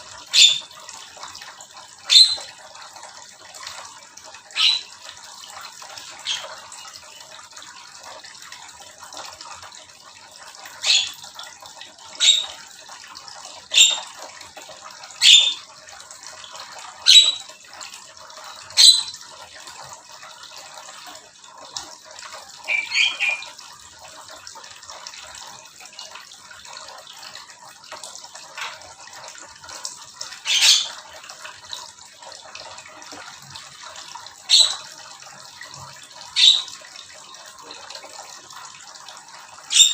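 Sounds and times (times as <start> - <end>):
small birds calling: 0.3 - 0.7, 2.1 - 2.5, 4.5 - 4.9, 12.2 - 12.6, 15.2 - 15.6, 17.0 - 17.4, 22.6 - 23.6, 30.4 - 31.0, 34.4 - 34.8, 36.3 - 36.7.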